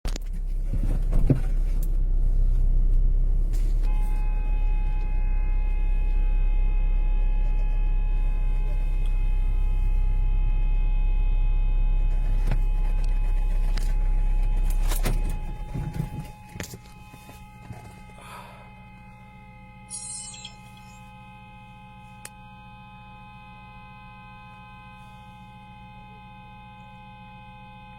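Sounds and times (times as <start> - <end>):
electronic hum: 2.0 - 27.9.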